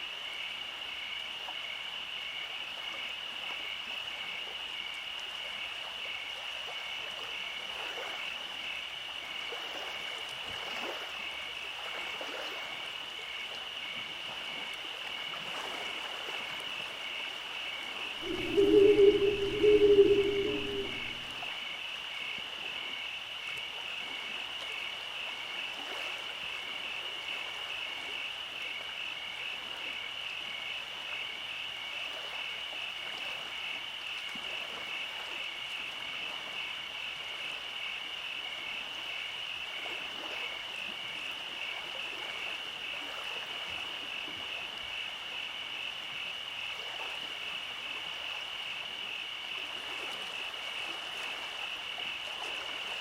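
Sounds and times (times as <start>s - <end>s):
frogs or insects trilling: 18.2s - 21.5s.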